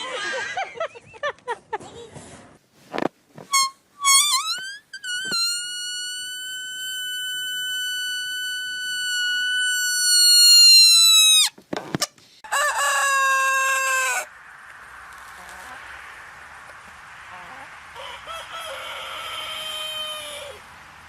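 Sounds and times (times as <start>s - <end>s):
rooster crowing: 12.4s - 14.3s, 18.0s - 20.6s.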